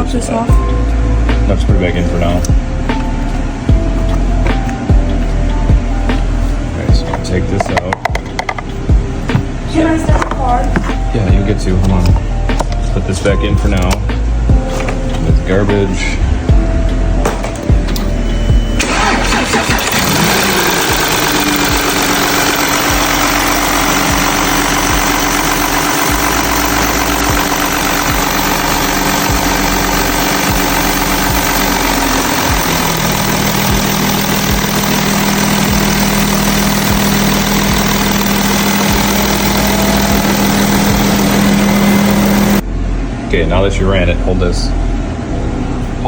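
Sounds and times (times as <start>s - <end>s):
car engine idling: 16.8s - 42.9s.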